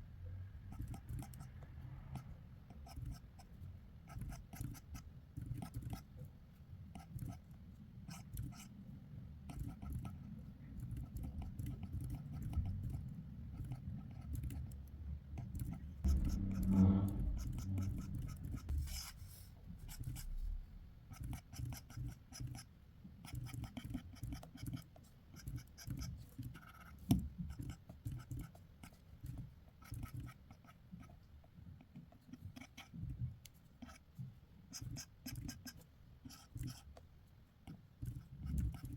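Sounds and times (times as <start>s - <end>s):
pencil sketching on paper: 15.4s - 20.4s
brief low pitched sound: 16.1s - 19.0s.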